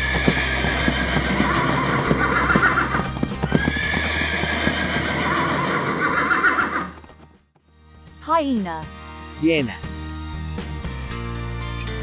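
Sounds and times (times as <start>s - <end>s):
horse whinnying: 0.0s - 7.2s
hooves clip-clopping: 0.0s - 8.2s.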